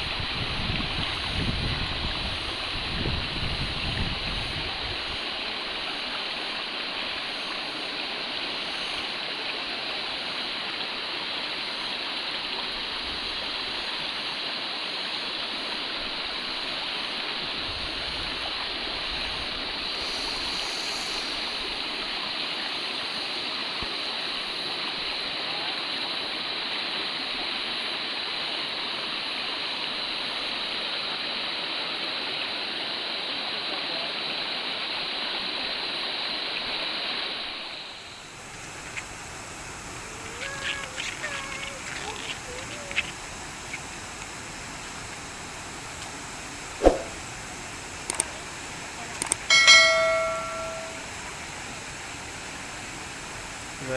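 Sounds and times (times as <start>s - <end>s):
wind rumble on microphone: 0.0s - 5.2s
river rushing over rocks: 23.5s - 53.9s.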